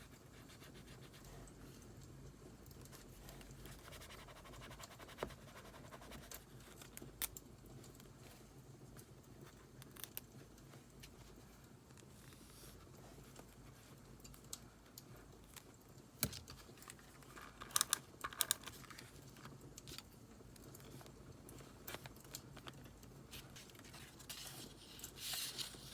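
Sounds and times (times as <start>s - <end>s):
paper rustling: 20.9s - 25.9s.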